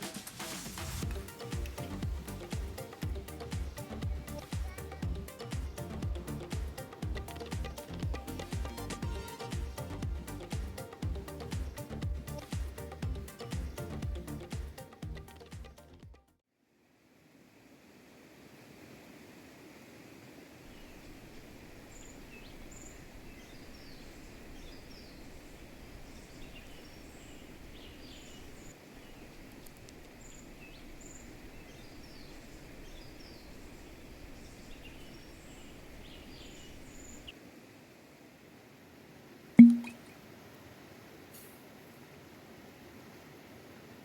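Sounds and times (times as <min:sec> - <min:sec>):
small birds chirping: 0:01.0 - 0:15.8, 0:20.7 - 0:29.4, 0:30.1 - 0:37.4.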